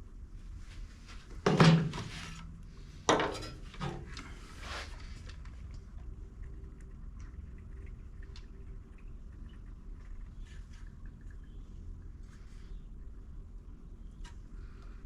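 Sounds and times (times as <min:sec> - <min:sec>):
tools clattering and scraping: 0:03.1 - 0:04.2.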